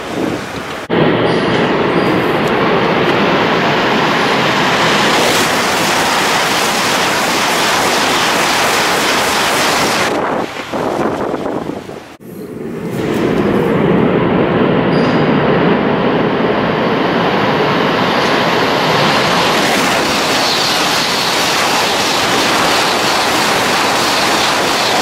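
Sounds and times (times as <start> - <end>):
high-speed train roaring past: 0.0 - 25.0.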